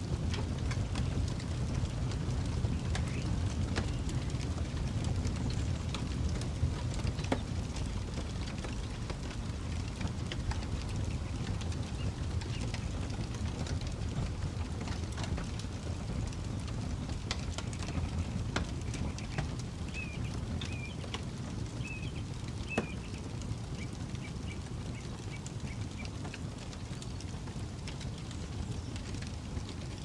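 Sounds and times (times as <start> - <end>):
campfire crackling and popping: 0.0 - 30.0
bird chirping: 19.9 - 21.0, 21.8 - 23.2.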